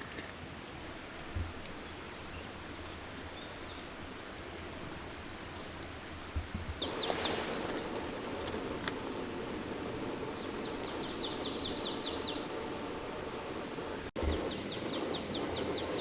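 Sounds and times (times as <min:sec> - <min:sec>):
steady outdoor hiss: 0:00.0 - 0:16.0
small birds chirping: 0:01.1 - 0:16.0.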